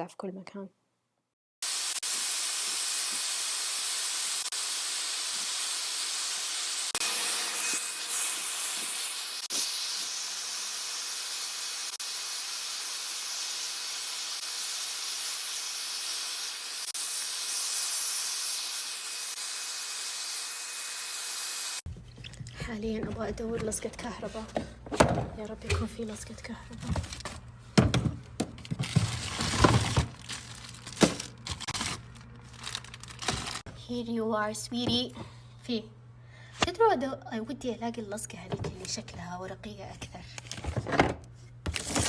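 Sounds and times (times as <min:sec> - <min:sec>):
vacuum cleaner running: 0:01.6 - 0:15.0.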